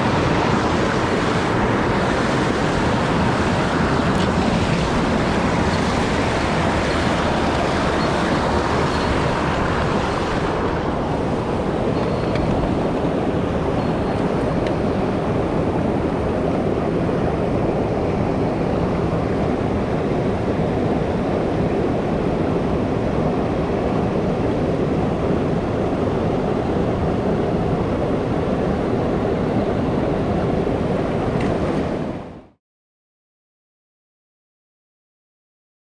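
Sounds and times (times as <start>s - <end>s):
stream water rushing over rocks: 0.0s - 19.2s.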